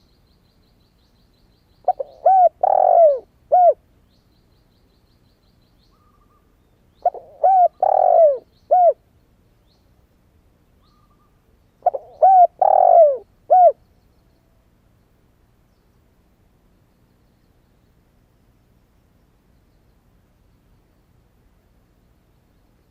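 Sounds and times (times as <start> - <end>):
dove cooing: 1.8 - 3.8, 7.0 - 9.0, 11.8 - 13.8.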